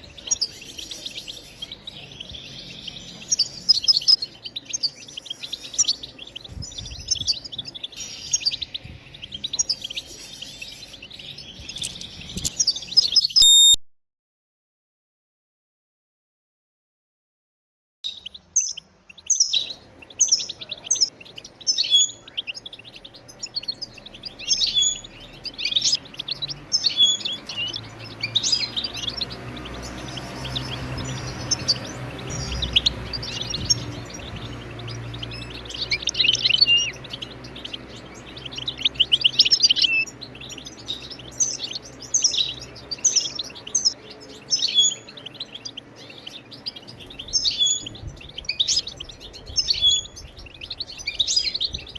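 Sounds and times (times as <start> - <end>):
goldfinch twittering call notes: 9.3 - 13.8.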